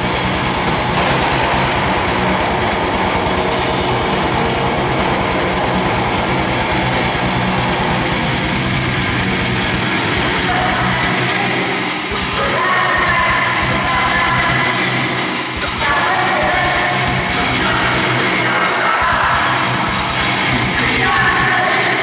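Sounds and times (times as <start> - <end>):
live band with guitar: 0.0 - 22.0.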